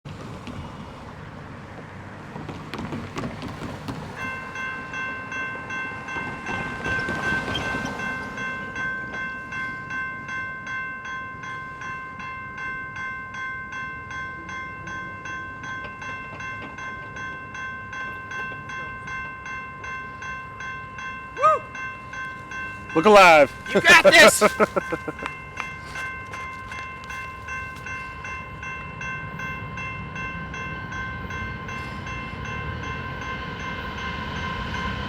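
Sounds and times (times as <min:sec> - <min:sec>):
train wheels rumbling on rails: 0:00.1 - 0:10.0
railroad crossing bell ringing: 0:03.8 - 0:35.0.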